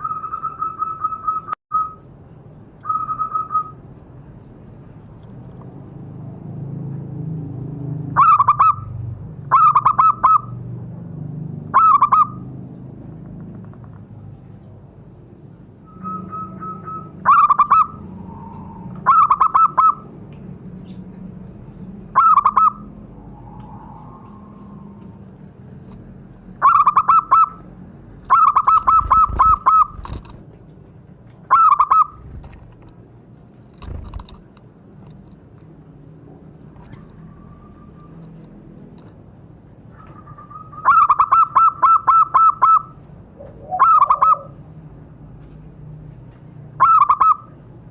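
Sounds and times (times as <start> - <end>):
dove cooing: 28.3 - 30.2, 40.0 - 44.6.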